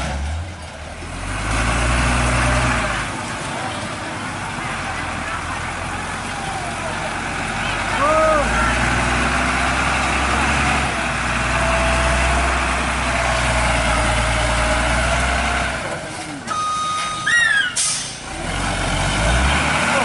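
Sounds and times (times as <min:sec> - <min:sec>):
diesel truck engine rumble: 0:00.0 - 0:20.0
high squeal: 0:16.7 - 0:18.2
air brake hiss: 0:17.8 - 0:18.2.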